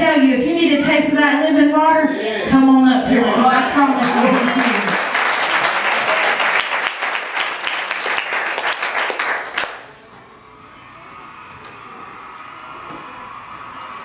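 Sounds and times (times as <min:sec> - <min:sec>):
congregation applauding: 0:03.9 - 0:10.1.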